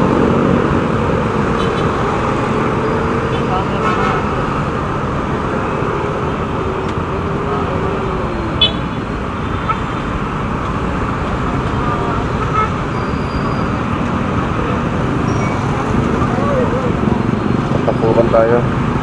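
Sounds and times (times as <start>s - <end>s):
road and traffic noise: 0.0s - 19.0s.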